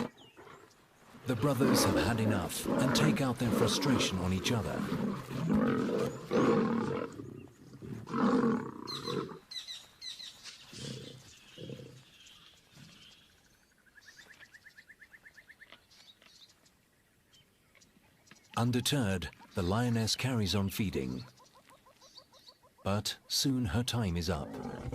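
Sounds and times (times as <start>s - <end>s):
lion growls: 0.0s - 9.4s, 10.7s - 12.1s, 24.3s - 24.9s
lions snarling and roaring: 0.0s - 9.5s, 10.7s - 12.1s, 24.3s - 24.9s.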